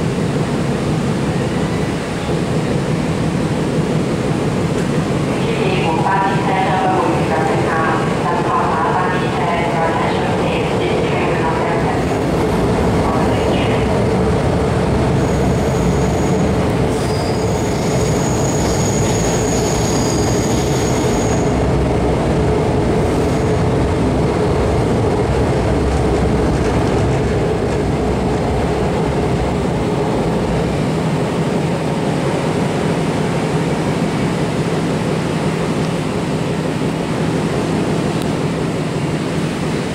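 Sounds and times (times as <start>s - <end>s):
train wheels rumbling on track: 0.0s - 39.9s
high-pitched wheel squeal: 15.2s - 21.5s.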